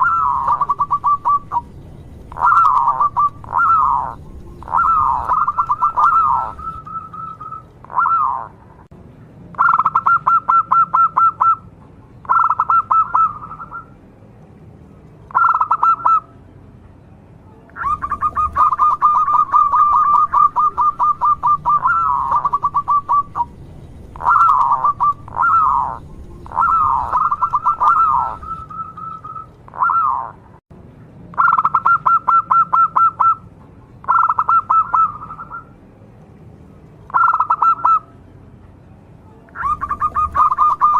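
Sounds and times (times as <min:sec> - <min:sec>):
dove cooing: 0:00.0 - 0:01.7, 0:02.3 - 0:08.6, 0:12.3 - 0:13.9, 0:15.3 - 0:16.3, 0:17.8 - 0:30.4, 0:34.1 - 0:35.7, 0:39.6 - 0:40.9.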